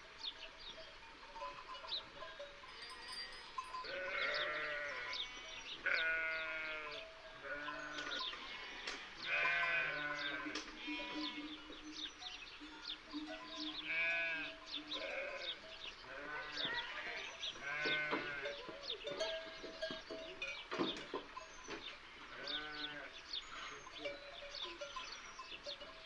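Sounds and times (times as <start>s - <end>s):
small birds chirping: 0.2s - 26.0s
livestock bleating: 2.7s - 12.0s, 13.4s - 19.2s, 22.1s - 25.4s.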